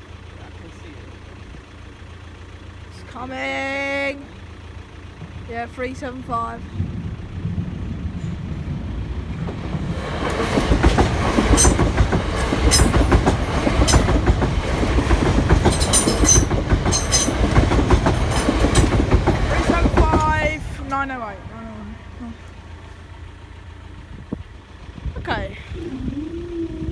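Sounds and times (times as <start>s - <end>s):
electric train passing: 4.4s - 23.9s
train wheels clacking: 9.4s - 21.0s.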